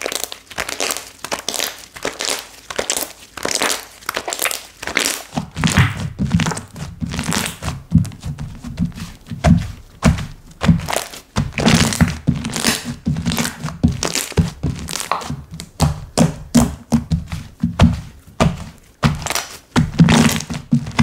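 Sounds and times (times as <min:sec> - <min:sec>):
slime popping and squishing: 0:00.0 - 0:21.0.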